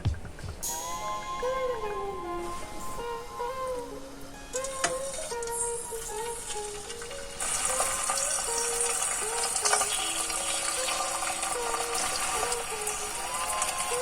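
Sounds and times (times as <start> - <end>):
music with plucked melody: 0.0 - 14.0
food sizzling in a frying pan: 4.6 - 14.0.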